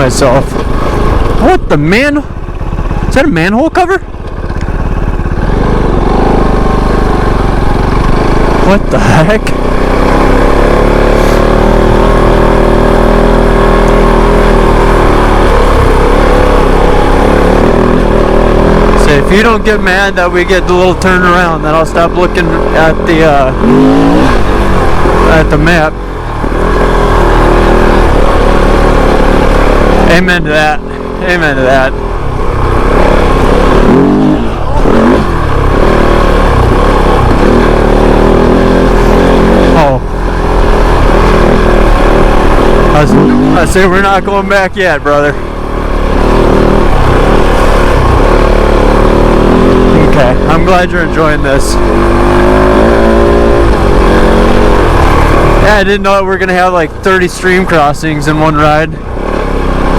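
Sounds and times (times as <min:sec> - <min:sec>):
off-road motorcycle engine running: 0:00.0 - 0:59.9.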